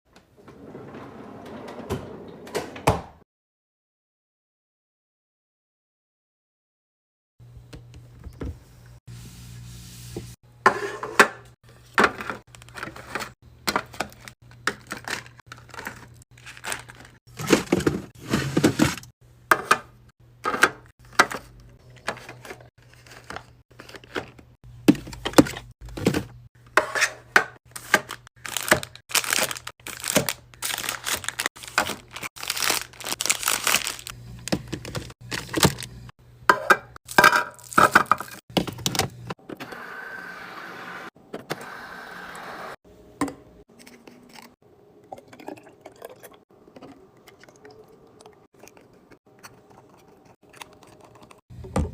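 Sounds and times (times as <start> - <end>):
packaging crinkling and tearing: 14.1 - 17.7, 27.7 - 36.0
containers knocking and clunking: 24.1 - 28.8, 34.4 - 35.9, 51.5 - 51.9.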